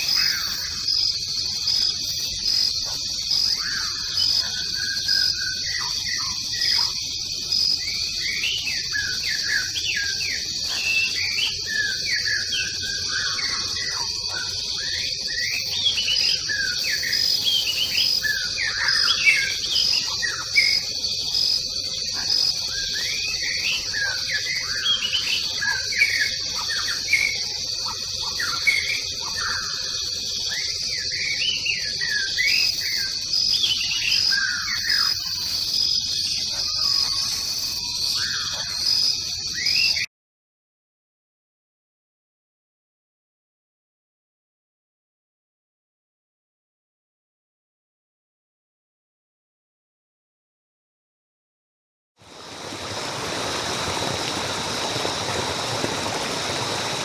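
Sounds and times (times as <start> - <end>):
birds chirping and calling: 0.0 - 40.1
high insect drone: 0.0 - 40.1, 52.2 - 57.0
pulsing insect call: 0.0 - 40.1, 52.2 - 57.0.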